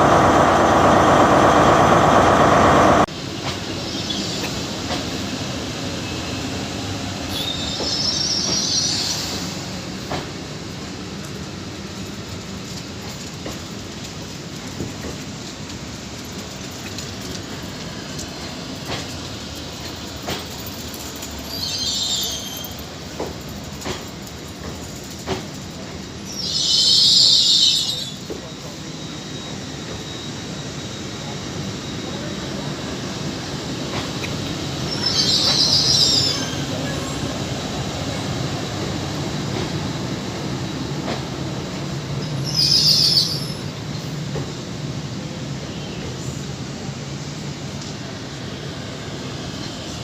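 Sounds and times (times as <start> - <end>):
train rumble on rails: 0.0 - 50.0
wheel squeal: 7.3 - 9.4, 21.4 - 22.8, 34.8 - 37.3, 42.2 - 43.7.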